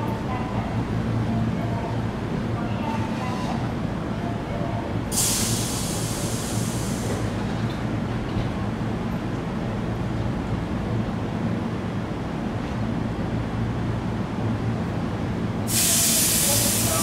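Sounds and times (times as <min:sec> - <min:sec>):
compressed air hiss: 0:05.1 - 0:07.2, 0:15.7 - 0:17.0.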